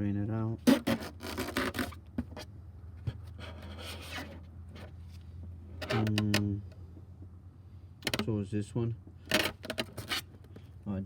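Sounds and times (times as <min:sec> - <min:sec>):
hand scraping on metal: 0:09.4 - 0:10.3.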